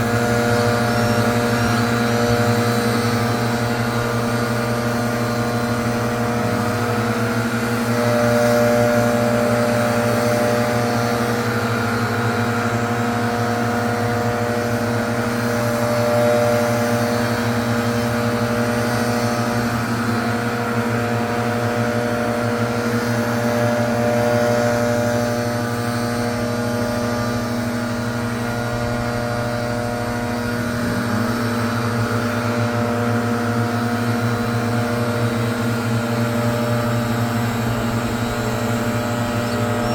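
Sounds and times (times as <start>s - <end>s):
leaf blower engine running: 0.0s - 39.9s.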